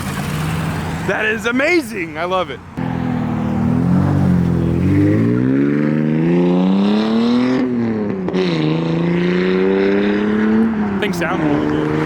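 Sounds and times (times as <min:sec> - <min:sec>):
car engine accelerating: 0:02.7 - 0:12.0.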